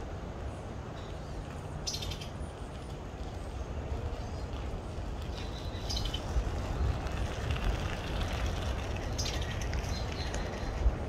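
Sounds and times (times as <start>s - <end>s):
steady low rumble: 0.0s - 11.0s
small birds chirping: 0.9s - 7.0s, 9.0s - 10.8s.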